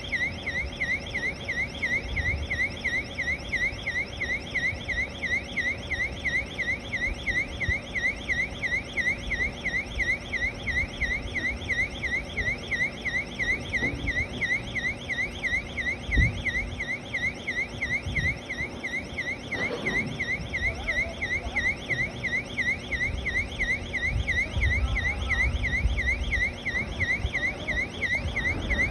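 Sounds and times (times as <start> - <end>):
warbling electronic warning alarm: 0.0 - 28.9
machine knocks and rumble: 28.3 - 28.9.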